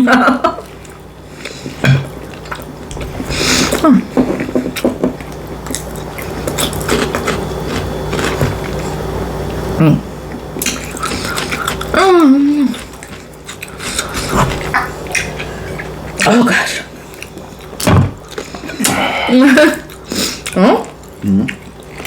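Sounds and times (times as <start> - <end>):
steady low hum: 0.0 - 22.0
person chewing with mouth smacks: 0.7 - 16.3, 19.8 - 22.0
person humming: 11.9 - 12.8.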